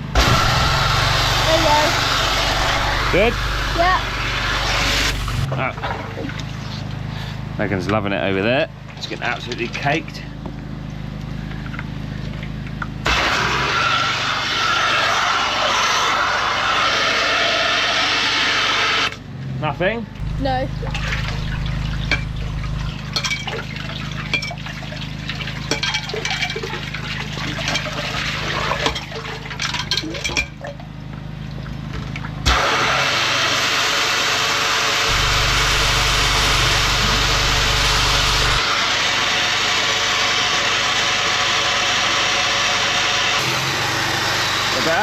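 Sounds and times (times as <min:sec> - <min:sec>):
loud rush of water and air: 0:00.0 - 0:05.5
engine running: 0:00.0 - 0:16.8, 0:19.1 - 0:29.8, 0:30.9 - 0:45.0
knocks and clatter: 0:20.2 - 0:23.6.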